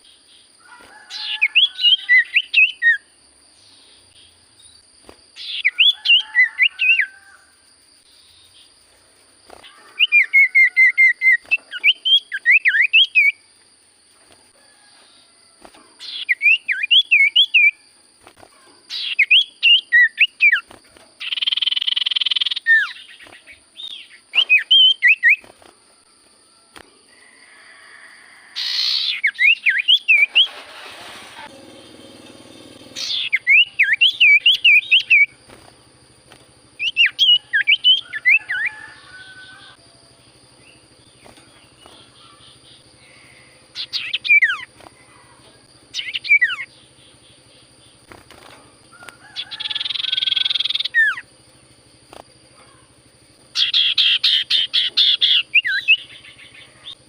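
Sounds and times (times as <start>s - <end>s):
bird singing whistled phrases: 1.2s - 3.0s, 10.0s - 13.4s, 16.0s - 17.8s, 23.8s - 25.4s, 28.6s - 30.5s, 33.0s - 35.4s, 43.8s - 44.7s
harsh rasping bird call: 27.1s - 35.4s.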